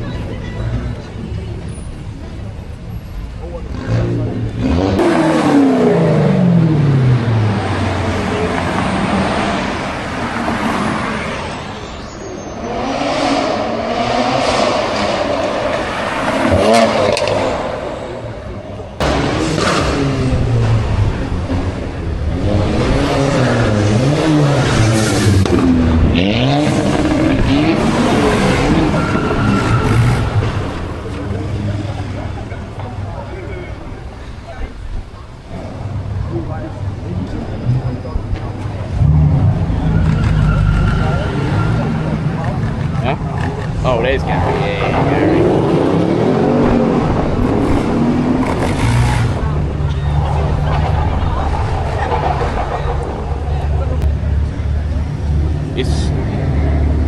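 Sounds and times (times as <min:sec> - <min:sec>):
car engine revving: 0:03.5 - 0:11.8, 0:12.6 - 0:33.0, 0:35.6 - 0:57.0
tyres squealing: 0:28.1 - 0:30.5, 0:39.6 - 0:42.2.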